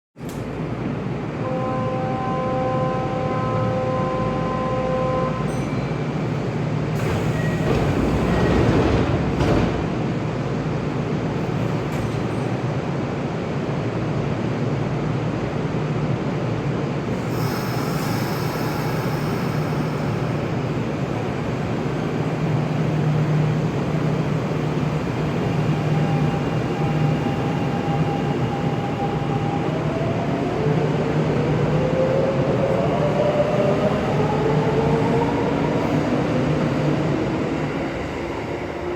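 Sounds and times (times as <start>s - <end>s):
electric train running hum: 13.2s - 38.9s.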